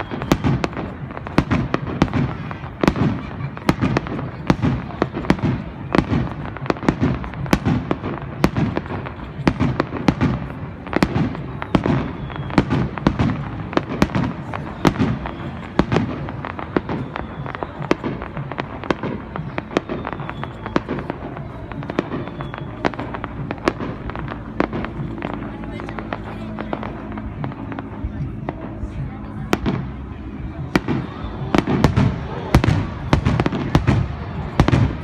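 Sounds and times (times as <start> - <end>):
faint high whistles: 0.0 - 0.9, 11.3 - 13.5, 14.4 - 23.7
fireworks bangs: 0.0 - 35.0
fireworks crackling: 0.0 - 35.0.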